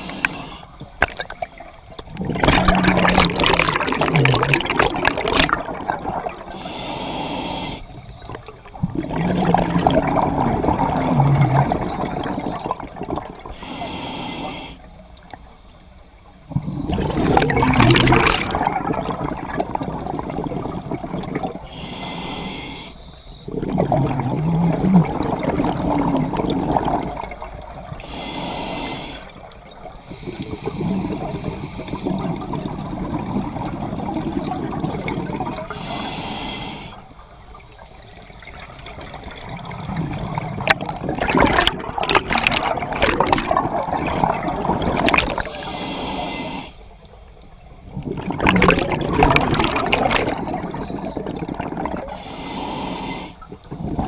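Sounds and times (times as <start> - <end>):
regulator inhalation hiss: 0.0 - 0.8, 6.5 - 8.2, 13.5 - 15.0, 21.7 - 23.2, 28.0 - 29.4, 30.0 - 32.3, 35.7 - 37.1, 45.4 - 47.1, 52.1 - 53.5
exhaled air bubbling: 0.0 - 14.6, 16.4 - 54.0.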